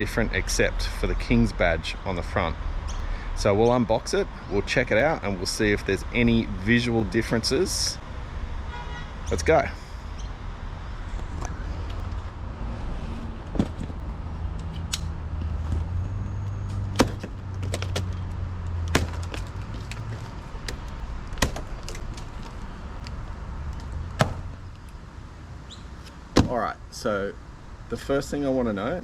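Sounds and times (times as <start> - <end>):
packaging snapping and knocking: 17.0 - 18.2.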